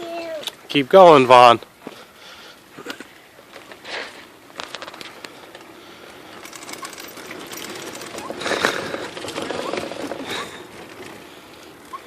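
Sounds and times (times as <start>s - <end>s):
bicycles rolling with fine ticking: 2.9s - 12.0s
bicycle clicks and rattles: 4.5s - 12.0s.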